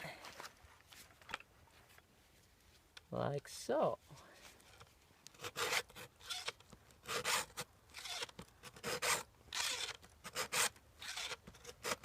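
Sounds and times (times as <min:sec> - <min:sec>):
files scraping chainsaw chain: 0:05.4 - 0:12.0.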